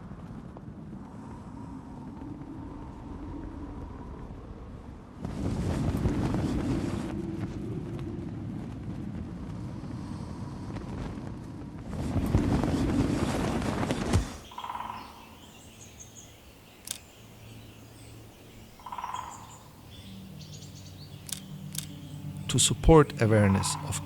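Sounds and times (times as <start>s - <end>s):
low bird calls: 14.2s - 24.0s
birds chirping: 14.3s - 24.0s.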